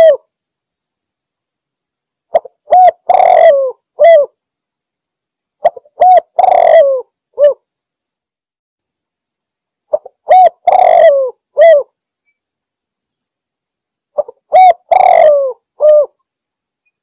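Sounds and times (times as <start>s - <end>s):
dove cooing: 0.0s - 0.2s, 2.3s - 4.4s, 5.6s - 7.6s, 9.9s - 11.9s, 14.2s - 16.2s.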